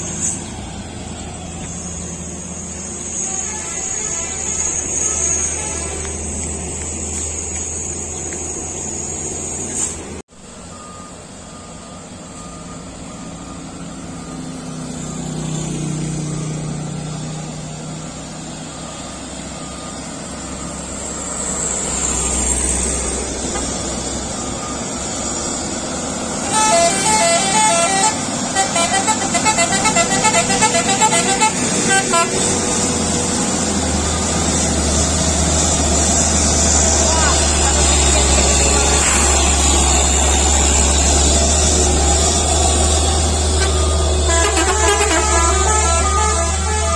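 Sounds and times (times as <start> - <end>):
truck engine running: 0.0 - 46.9
multi-tone horn: 3.1 - 6.4, 26.4 - 32.9, 43.0 - 46.9.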